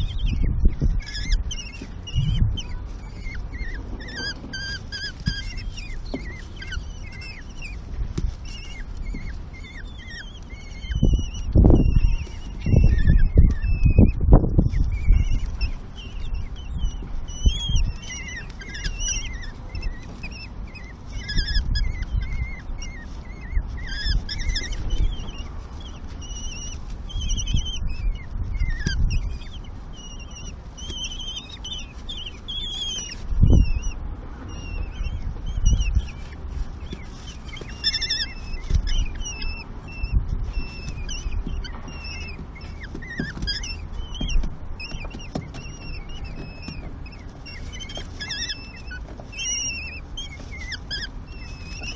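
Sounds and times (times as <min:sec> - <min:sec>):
low thumps and rumbles: 0:00.0 - 0:07.1
bird chicks chirping: 0:00.0 - 0:51.9.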